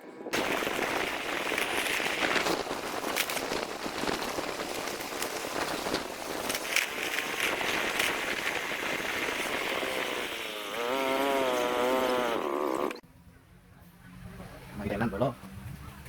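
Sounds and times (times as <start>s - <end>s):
noisy hiss with crackles: 0.3s - 10.0s.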